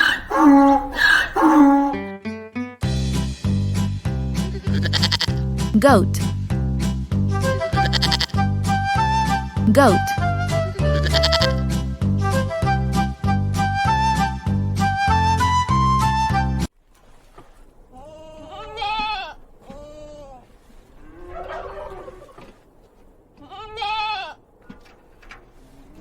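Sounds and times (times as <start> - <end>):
goat bleating: 0.0 - 2.0, 4.5 - 5.4, 7.7 - 8.5, 10.7 - 11.6, 18.4 - 19.4.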